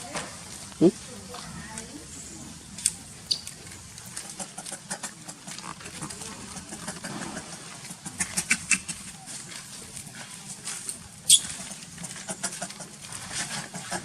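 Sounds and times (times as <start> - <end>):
clicks and rustles: 2.7 - 14.0
monkeys squeaking: 3.2 - 3.5, 11.2 - 11.7.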